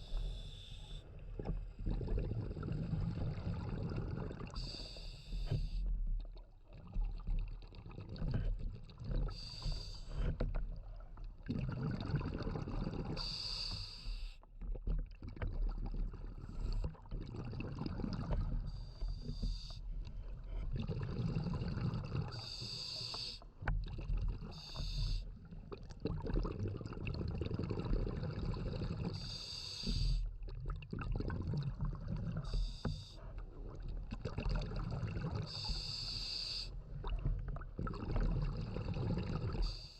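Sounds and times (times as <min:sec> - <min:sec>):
exhaled bubbles bursting: 0:01.4 - 0:04.6, 0:06.2 - 0:09.3, 0:10.6 - 0:13.2, 0:14.7 - 0:19.0, 0:20.1 - 0:22.4, 0:25.4 - 0:29.2, 0:30.4 - 0:35.8, 0:36.8 - 0:39.9.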